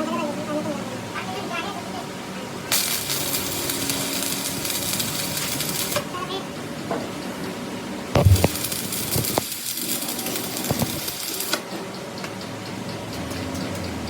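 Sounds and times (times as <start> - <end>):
workshop machine running: 2.1 - 14.0
sharp knocks: 8.2 - 8.6.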